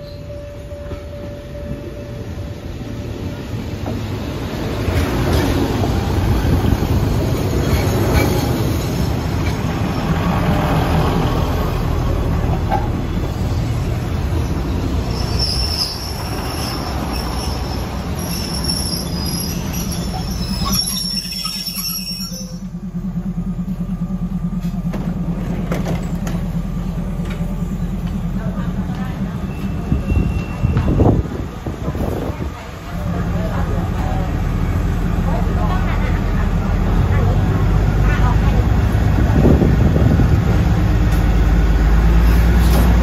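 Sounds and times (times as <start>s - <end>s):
train wheels rumbling: 0.0s - 43.0s
wheel and brake squeal: 14.5s - 22.8s
diesel engine idling: 22.6s - 29.3s.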